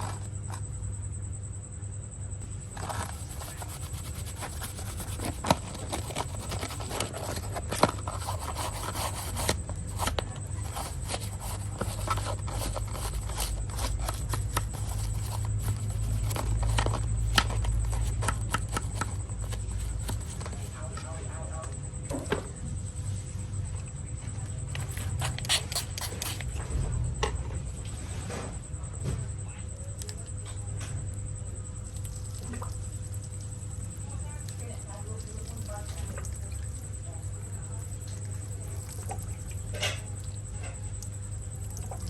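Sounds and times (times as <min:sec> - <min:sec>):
low steady hum: 0:00.0 - 0:42.0
scrubbing and scraping: 0:02.7 - 0:21.0, 0:24.7 - 0:26.6.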